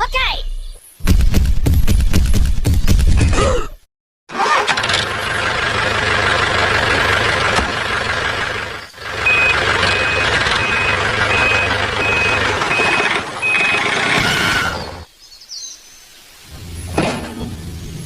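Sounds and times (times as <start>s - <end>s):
engine running: 4.3s - 15.1s
reversing beeper beeping: 9.2s - 14.0s.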